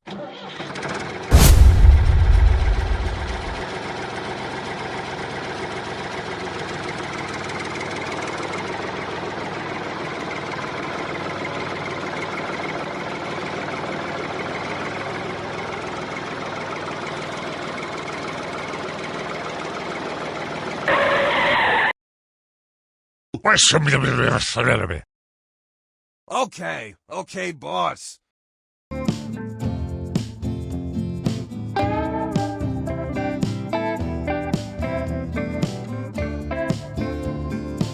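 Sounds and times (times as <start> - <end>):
brief bright sound: 1.3 - 3.6
tractor engine idling: 3.7 - 20.8.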